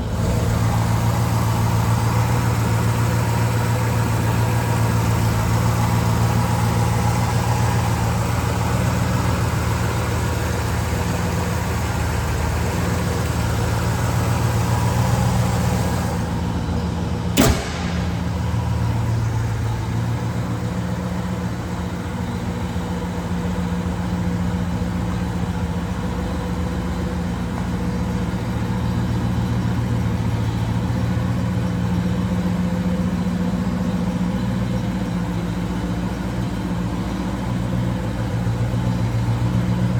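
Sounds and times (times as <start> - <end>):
car engine idling: 0.0 - 39.9
sharp click: 17.4 - 19.8.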